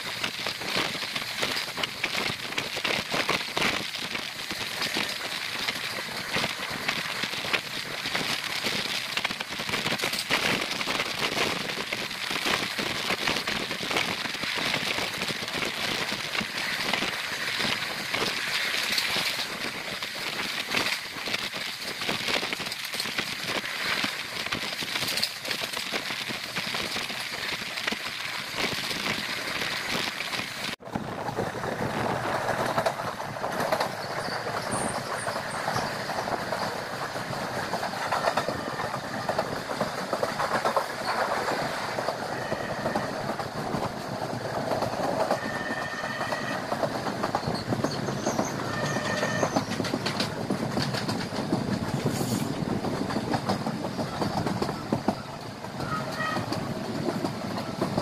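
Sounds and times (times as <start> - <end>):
small crackles: 0.0 - 30.8
rushing air from train window: 0.0 - 58.0.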